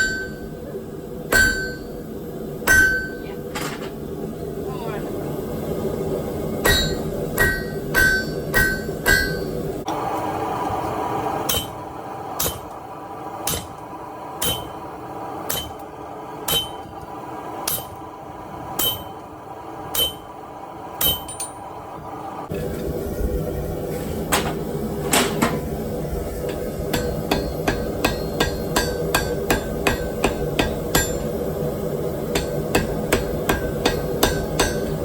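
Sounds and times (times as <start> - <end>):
hammer ringing on anvil: 0.0 - 0.5, 1.3 - 2.0, 2.7 - 3.3, 6.6 - 9.6, 11.5 - 11.8, 14.4 - 14.8, 15.5 - 15.8, 16.5 - 16.9, 18.8 - 19.2, 19.9 - 20.3, 21.0 - 21.6, 26.9 - 31.3, 32.3 - 35.0.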